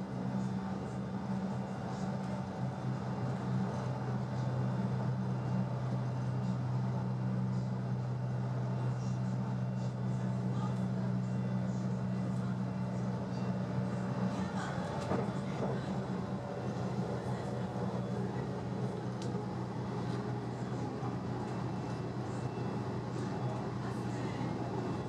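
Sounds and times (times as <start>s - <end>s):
low hum inside train: 0.0s - 25.0s
train wheels rumbling on track: 12.2s - 25.0s.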